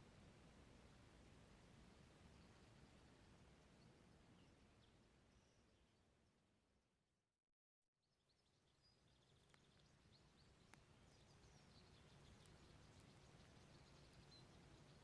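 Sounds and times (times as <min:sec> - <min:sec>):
distant birds chirping: 0:08.7 - 0:15.0.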